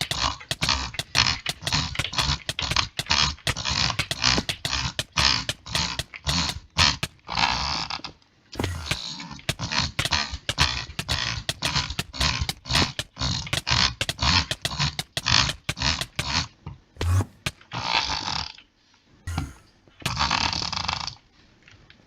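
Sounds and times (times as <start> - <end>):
rasping grunting vocal noises: 0.0 - 18.6, 19.3 - 21.2
person making mouth clicks: 19.3 - 20.3.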